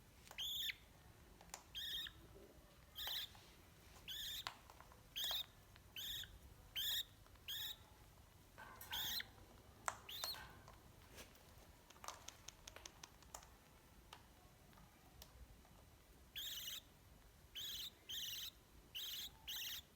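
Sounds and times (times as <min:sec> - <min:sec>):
faint clicks: 0:11.8 - 0:15.8
parrot high calls: 0:17.6 - 0:19.9.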